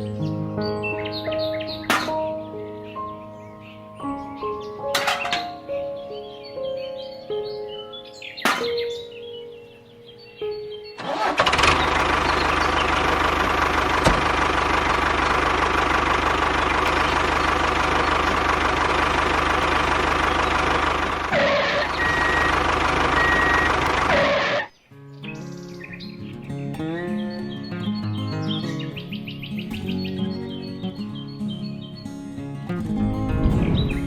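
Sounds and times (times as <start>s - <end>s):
small engine running: 11.0s - 24.7s.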